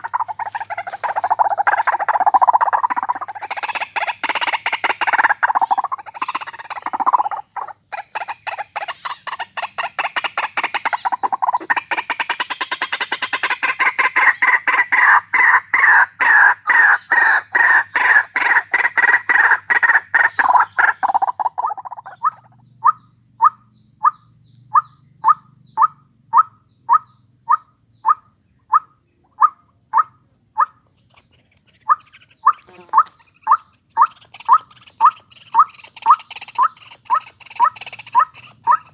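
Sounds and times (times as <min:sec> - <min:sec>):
waterhen calling: 0:00.0 - 0:09.4, 0:10.1 - 0:24.2, 0:31.8 - 0:38.9
steady high-pitched hiss: 0:00.0 - 0:38.9.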